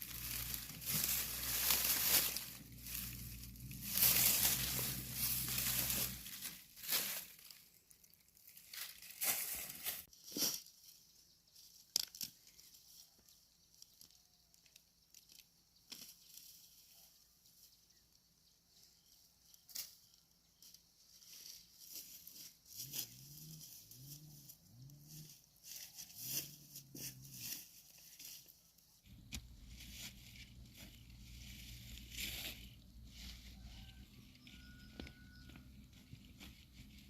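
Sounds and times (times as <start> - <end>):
dry plant material crunching: 0.0 - 10.7, 21.2 - 37.0.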